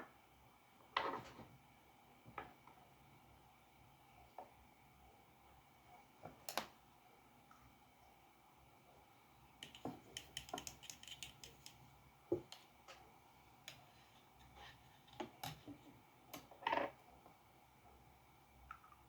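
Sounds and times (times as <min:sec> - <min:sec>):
drawing tools clicking and tapping: 0:09.6 - 0:13.0.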